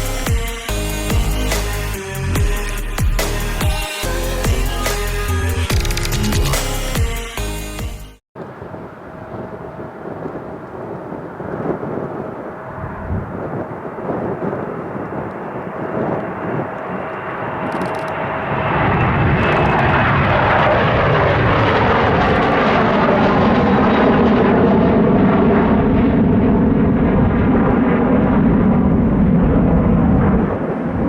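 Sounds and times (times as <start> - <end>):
high jet engine whine: 8.4 - 31.0
jet engines rumbling at takeoff: 8.4 - 31.0.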